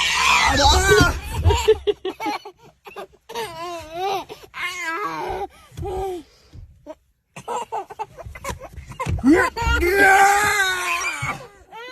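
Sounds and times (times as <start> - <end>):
young child laughing: 1.3 - 3.1.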